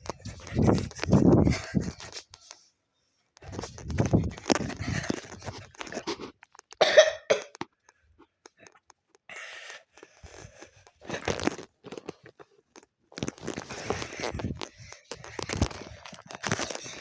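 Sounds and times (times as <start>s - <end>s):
person coughing: 6.8s - 7.6s.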